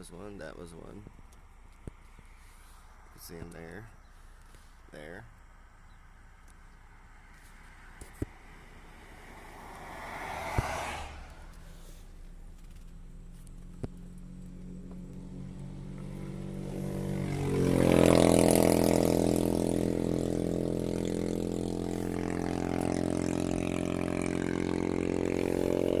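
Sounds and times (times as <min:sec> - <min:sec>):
propeller aircraft engine drone: 0:11.0 - 0:26.0.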